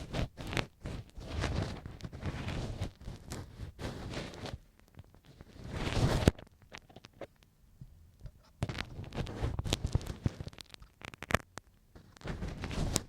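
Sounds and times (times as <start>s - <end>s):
ear pick scraping on microphone: 0.0s - 4.6s, 5.2s - 7.3s, 8.3s - 11.4s.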